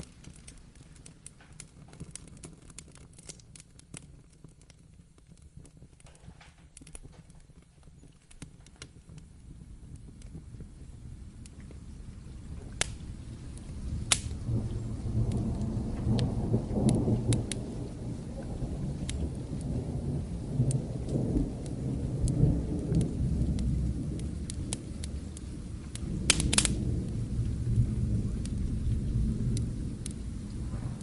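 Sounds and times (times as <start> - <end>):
steady rain: 0.0 - 31.0
wood fire crackling: 0.0 - 31.0
distant thunder rumble: 9.1 - 31.0.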